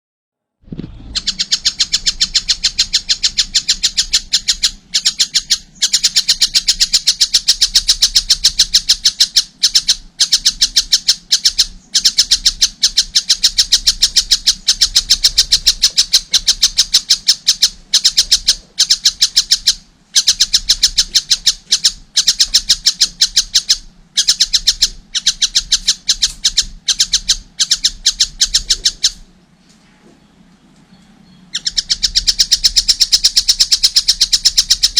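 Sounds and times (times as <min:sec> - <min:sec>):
kingfisher harsh calls: 0:31.5 - 0:34.9.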